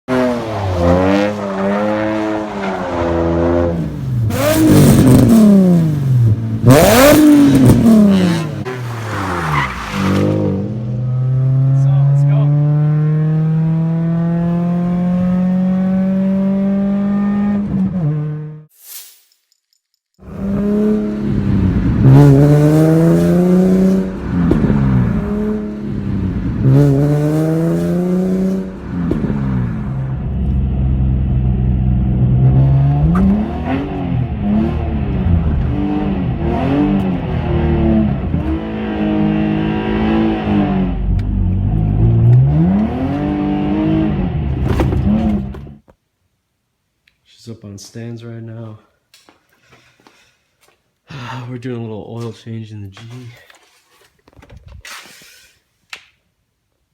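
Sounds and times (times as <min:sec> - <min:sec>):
car engine revving: 0:00.1 - 0:18.7, 0:20.2 - 0:45.8.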